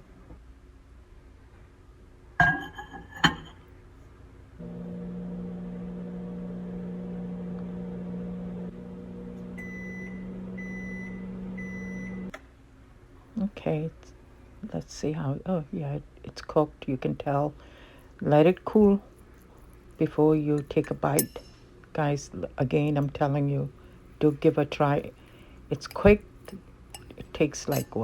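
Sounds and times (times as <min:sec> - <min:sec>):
microwave oven humming: 0:04.4 - 0:13.8.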